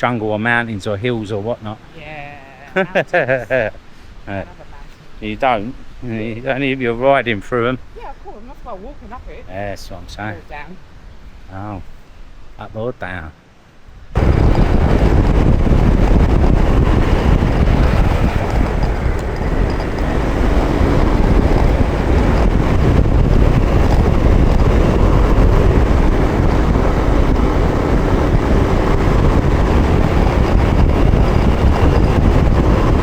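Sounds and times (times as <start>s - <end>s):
wind rushing over microphone: 13.9s - 33.0s
road and motor noise: 14.2s - 33.0s.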